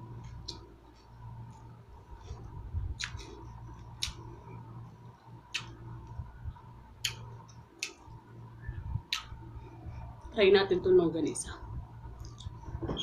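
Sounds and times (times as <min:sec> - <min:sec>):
low steady hum: 0:00.0 - 0:13.0
chewing and mouth noises: 0:02.9 - 0:04.4, 0:07.0 - 0:08.0.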